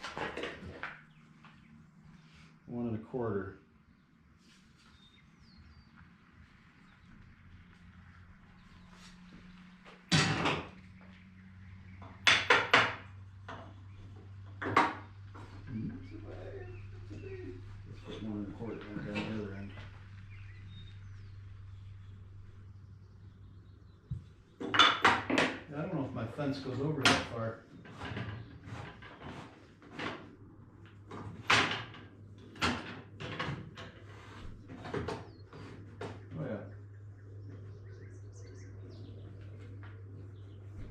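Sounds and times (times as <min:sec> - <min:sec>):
wooden knocks and clatters: 0:00.0 - 0:01.6, 0:07.6 - 0:20.3, 0:24.1 - 0:25.7, 0:27.0 - 0:36.4
saw fence scraping knocks: 0:26.6 - 0:30.4.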